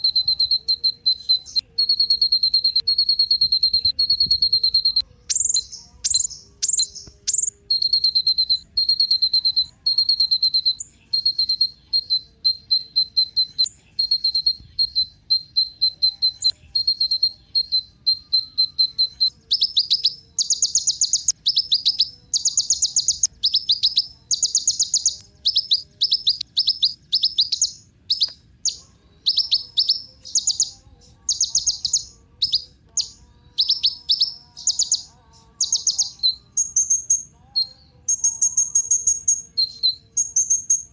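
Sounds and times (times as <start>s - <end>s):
sunbird chirping: 0.0s - 40.9s.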